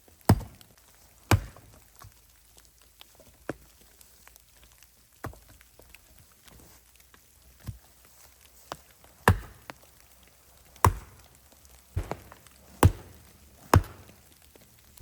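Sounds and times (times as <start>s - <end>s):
firewood being chopped: 0.2s - 2.1s, 8.7s - 10.0s, 10.6s - 15.0s.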